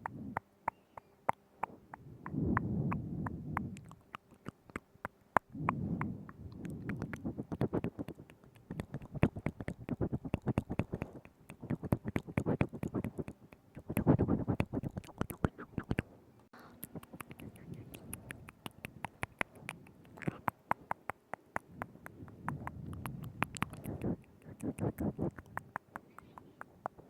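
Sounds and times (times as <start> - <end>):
wet tongue clicks and smacks: 0.0 - 16.0, 16.8 - 27.0
soft breathy murmuring: 1.6 - 16.0, 16.6 - 27.0.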